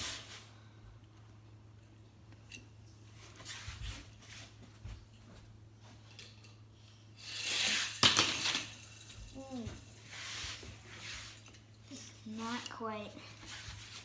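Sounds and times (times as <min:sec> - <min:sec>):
toy car rolling down track: 0:07.2 - 0:09.5
toy cars clicking and rustling: 0:07.2 - 0:12.8.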